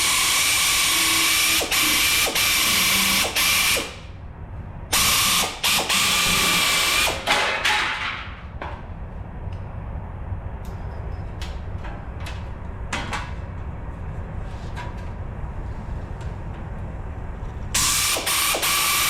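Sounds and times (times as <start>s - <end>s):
pneumatic shears cutting sheet steel: 0.0s - 4.0s, 4.9s - 8.2s, 17.8s - 19.0s.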